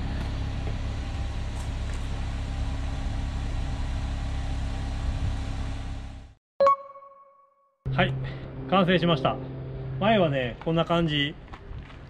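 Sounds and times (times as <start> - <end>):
car engine idling: 0.0 - 6.3.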